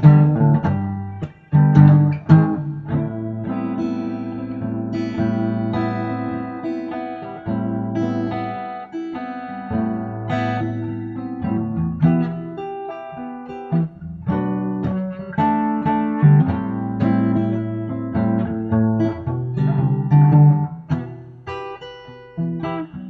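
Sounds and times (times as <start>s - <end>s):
acoustic guitar: 0.0s - 23.0s.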